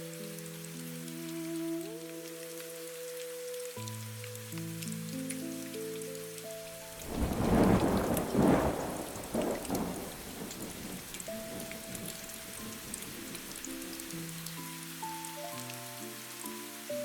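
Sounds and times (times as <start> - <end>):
soft piano notes: 0.0 - 17.0
steady rain: 0.0 - 17.0
thunder rolling: 7.0 - 13.6.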